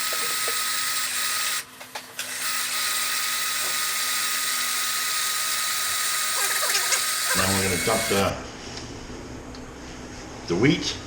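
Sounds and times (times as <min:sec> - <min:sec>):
grain mill whirring and grinding: 0:00.0 - 0:08.4.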